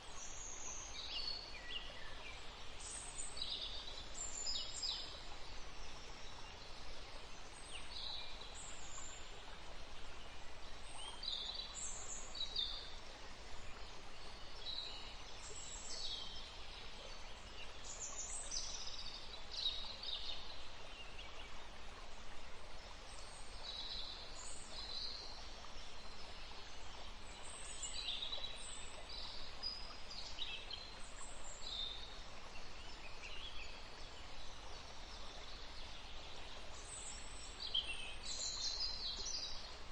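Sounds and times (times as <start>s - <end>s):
steady faint hiss: 0.0s - 39.9s.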